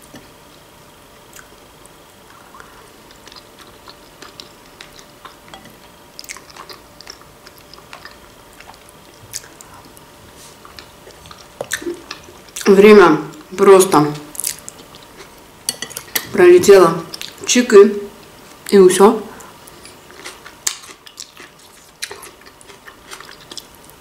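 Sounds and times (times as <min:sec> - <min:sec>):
chewing with wet mouth clicks: 0:02.6 - 0:05.6, 0:06.2 - 0:10.0, 0:10.6 - 0:12.7, 0:19.7 - 0:23.7.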